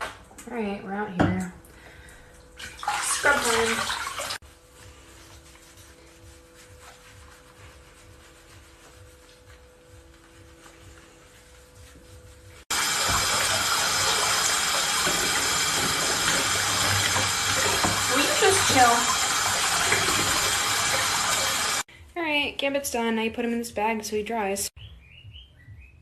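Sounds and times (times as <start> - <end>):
water running from a tap: 2.0 - 4.4, 12.7 - 21.9.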